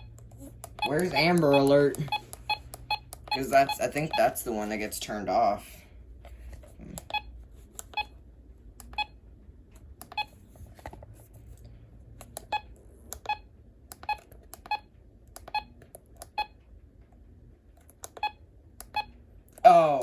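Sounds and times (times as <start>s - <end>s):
short key beeps: 0.8s - 4.3s.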